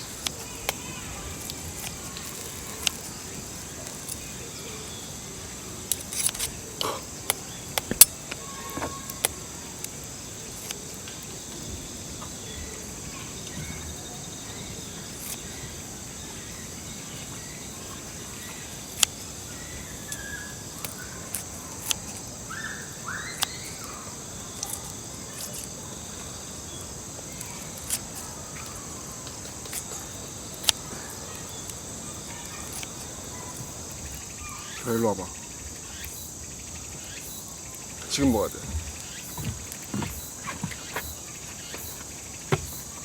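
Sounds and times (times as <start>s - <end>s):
sharp clicks: 0.0s - 4.5s, 5.8s - 11.2s, 17.2s - 25.8s, 27.2s - 35.1s
crickets and insects droning: 0.0s - 43.0s
short bird chirps: 22.5s - 25.4s.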